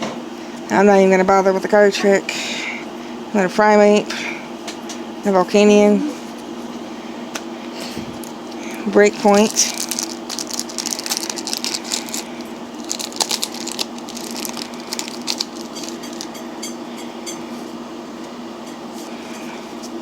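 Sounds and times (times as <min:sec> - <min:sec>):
steady hum: 0:00.0 - 0:20.0
cards rustling and clicking: 0:07.8 - 0:16.4
foil pack crinkling: 0:07.8 - 0:16.6.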